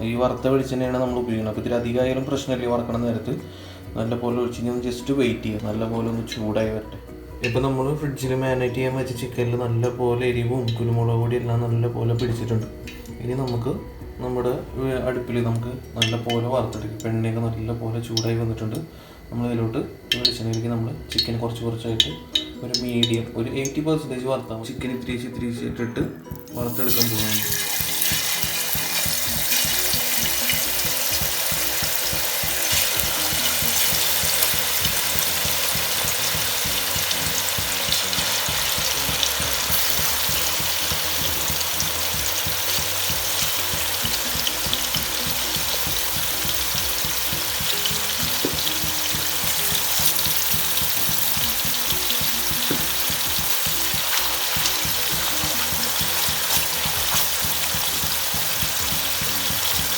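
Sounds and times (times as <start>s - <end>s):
chicken sizzling in oil: 26.3s - 59.9s.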